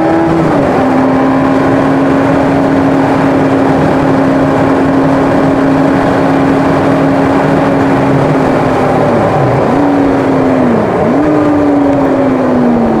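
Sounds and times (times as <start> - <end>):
car engine downshifting: 0.0 - 13.0
road and tyre noise: 0.0 - 13.0.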